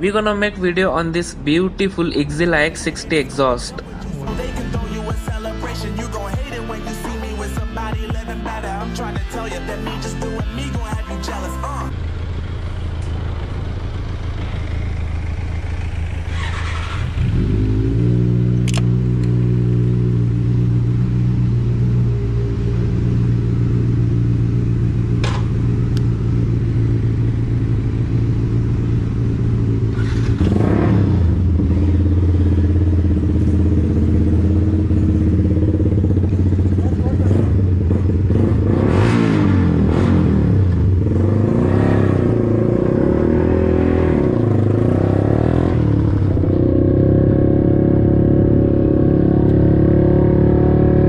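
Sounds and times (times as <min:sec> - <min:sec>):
motorcycle engine running: 0:09.2 - 0:51.0
sharp clicks: 0:18.6 - 0:19.4.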